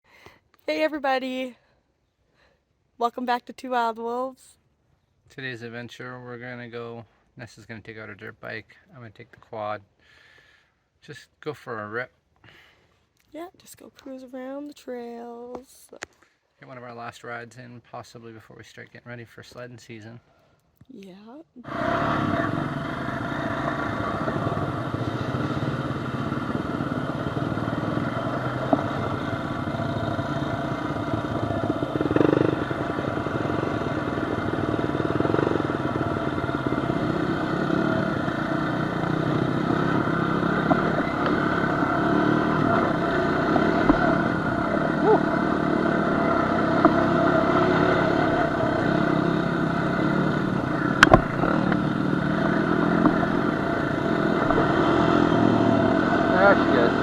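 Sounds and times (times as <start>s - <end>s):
off-road vehicle engine running: 21.6s - 57.0s.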